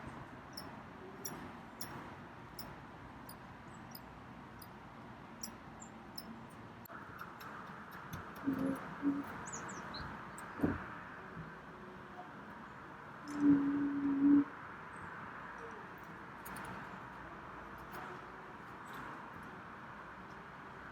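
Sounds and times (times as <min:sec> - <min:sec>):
birds chirping: 0:08.4 - 0:10.7.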